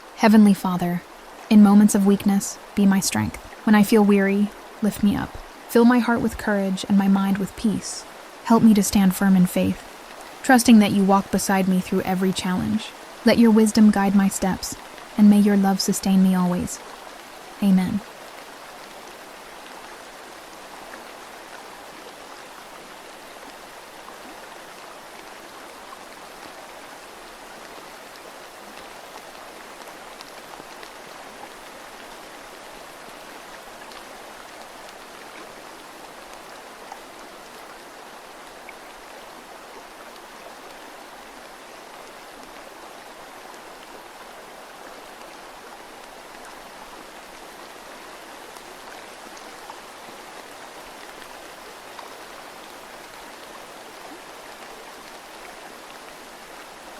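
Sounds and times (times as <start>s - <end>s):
faint ticks: 27.6s - 31.0s.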